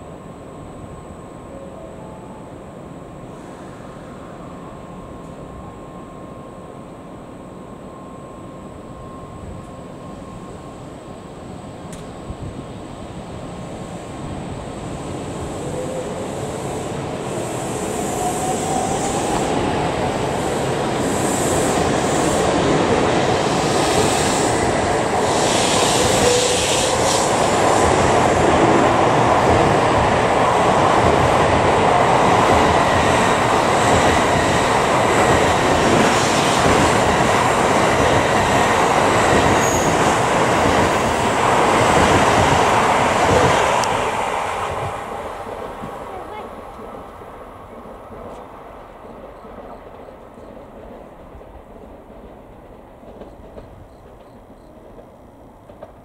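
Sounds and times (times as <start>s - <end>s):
train pulling out and accelerating: 0.0s - 56.0s
rush of wheels and air: 16.2s - 46.0s.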